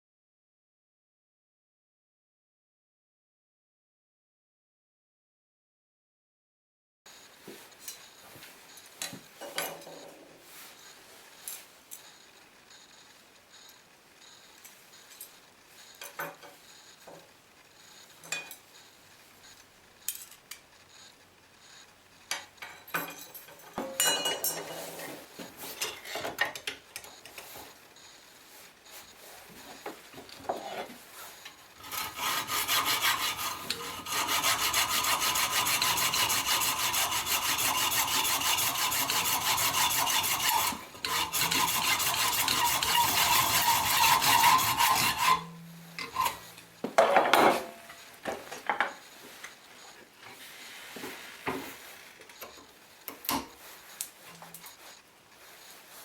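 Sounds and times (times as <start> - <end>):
tool rasping scrape: 30.5 - 46.8.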